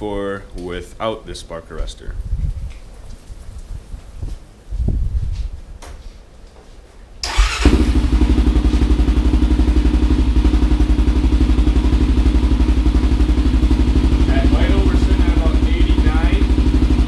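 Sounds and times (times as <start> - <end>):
engine starting and idling: 7.2 - 10.3.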